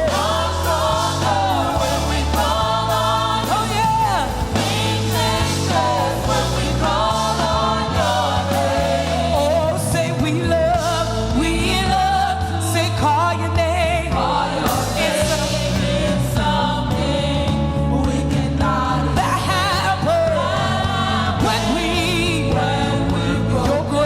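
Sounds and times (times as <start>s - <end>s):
instrumental accompaniment: 0.0s - 11.4s
bass line: 0.0s - 24.0s
choir singing gospel: 0.0s - 24.0s.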